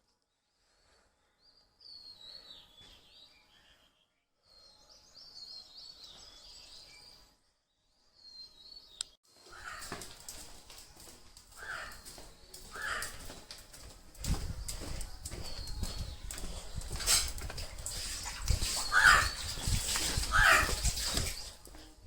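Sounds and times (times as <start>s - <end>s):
songbirds chirping: 0.2s - 22.0s
rustling noise: 9.8s - 22.0s.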